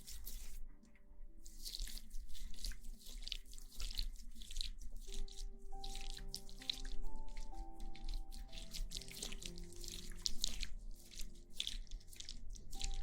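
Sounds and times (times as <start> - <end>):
hands scrubbing wet hair: 0.0 - 0.8, 1.4 - 13.0
soft background music: 0.0 - 13.0.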